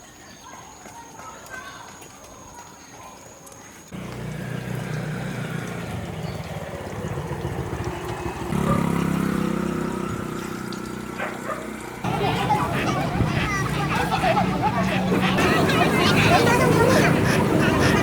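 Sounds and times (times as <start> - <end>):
engine running steadily: 3.9 - 18.0.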